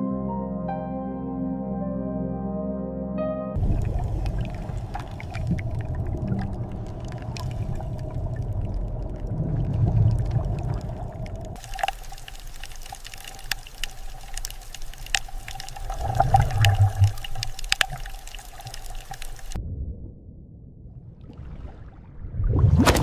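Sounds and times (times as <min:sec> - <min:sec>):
steady underwater hum: 0:03.6 - 0:19.8
underwater sloshing and trickling: 0:03.6 - 0:23.0
sharp clicks and ticks: 0:10.0 - 0:19.6.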